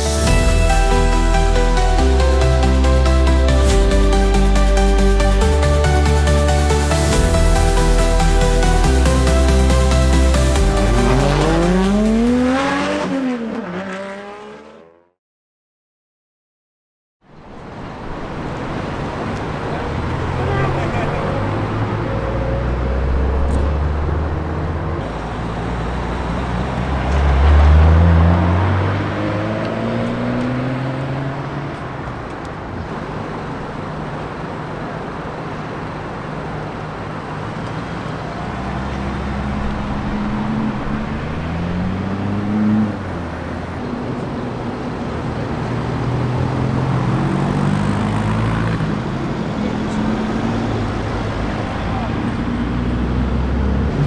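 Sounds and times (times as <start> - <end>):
car engines accelerating: 0.0 - 15.2, 17.7 - 54.0.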